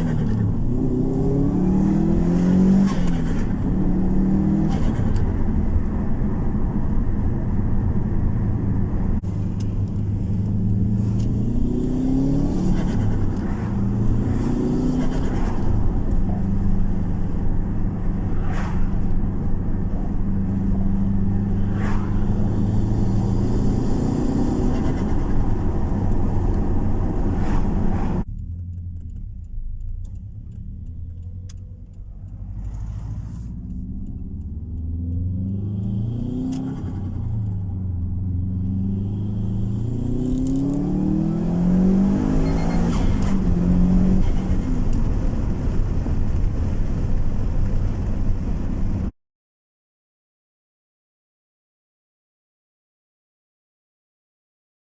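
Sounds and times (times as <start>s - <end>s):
turbocharged engine revving: 0.0s - 6.2s, 9.2s - 46.1s.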